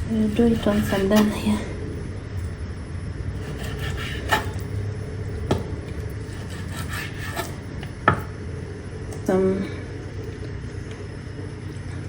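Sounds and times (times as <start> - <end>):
knife sawing through raw meat: 0.1 - 1.3, 3.4 - 4.6, 6.2 - 7.6.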